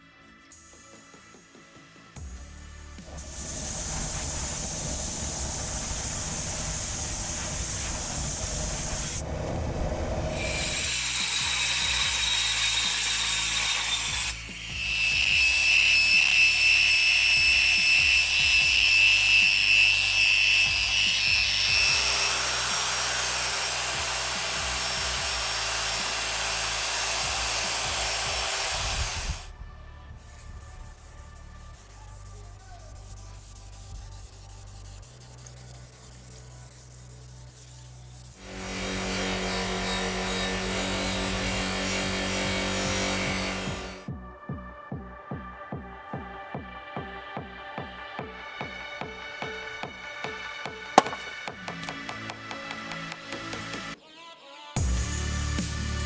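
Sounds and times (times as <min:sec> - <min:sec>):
power tool whine with grinding: 0:03.0 - 0:29.5, 0:38.4 - 0:44.1, 0:51.0 - 0:52.5.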